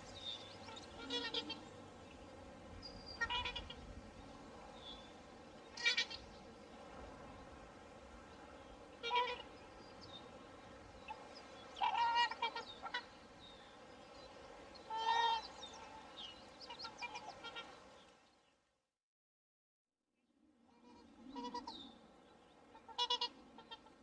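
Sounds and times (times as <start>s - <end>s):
swans honking: 0.0s - 1.8s, 3.2s - 3.8s, 5.7s - 6.2s, 9.0s - 9.6s, 11.1s - 13.3s, 14.8s - 17.8s, 20.8s - 21.8s, 22.7s - 24.0s.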